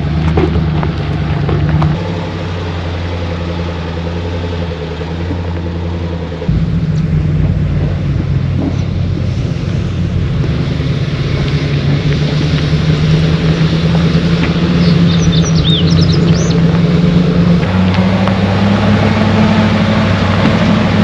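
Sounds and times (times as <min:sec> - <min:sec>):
pickup truck engine running: 0:02.0 - 0:21.0
bird chirping: 0:14.6 - 0:16.7.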